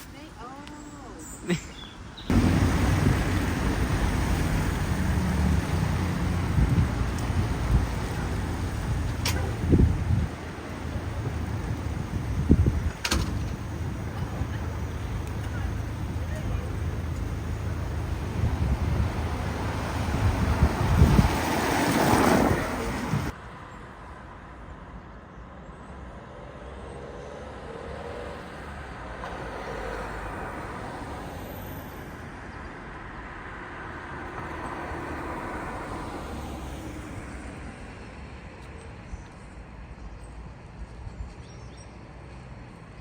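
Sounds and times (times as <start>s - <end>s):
distant traffic: 0.0s - 43.0s
vehicle passing close by: 2.3s - 23.3s.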